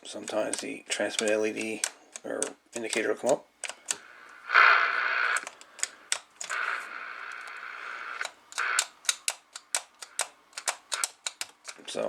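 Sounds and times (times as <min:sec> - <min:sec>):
radio switch clicks: 0:00.3 - 0:11.6
radio static hiss: 0:02.8 - 0:09.0.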